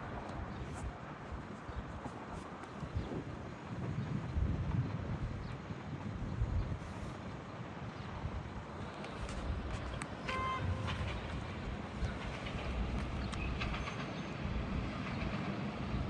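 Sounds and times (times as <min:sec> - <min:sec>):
train rumbling: 0:00.0 - 0:16.0
train horn toot: 0:10.2 - 0:11.2.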